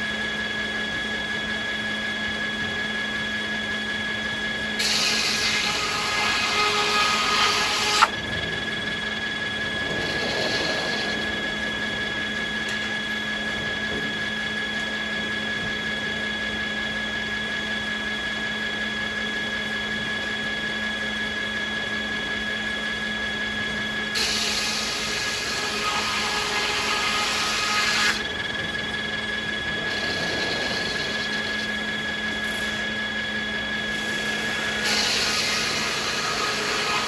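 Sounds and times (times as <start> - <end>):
circular saws whining: 0.0 - 37.0
machinery hum: 0.0 - 37.0
saw cutting wood: 4.8 - 8.2, 9.9 - 11.8, 24.2 - 28.3, 29.7 - 32.9, 33.9 - 37.0.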